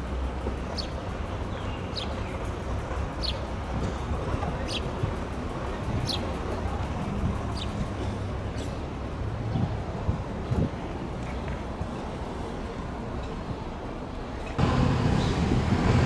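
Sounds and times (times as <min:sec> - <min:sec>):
low outdoor rumble: 0:14.2 - 0:16.0.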